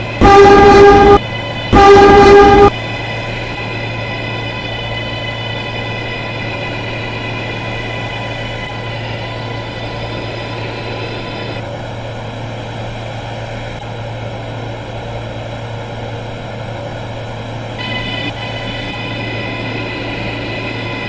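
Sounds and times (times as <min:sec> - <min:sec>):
high electric tones: 0:00.0 - 0:11.6, 0:17.8 - 0:21.0
subway train rumble: 0:00.0 - 0:21.0.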